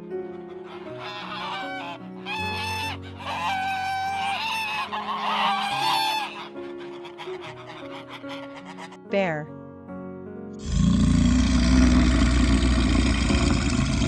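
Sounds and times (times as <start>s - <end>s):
soft background music: 0.0s - 11.2s
ducks quacking: 0.1s - 9.1s.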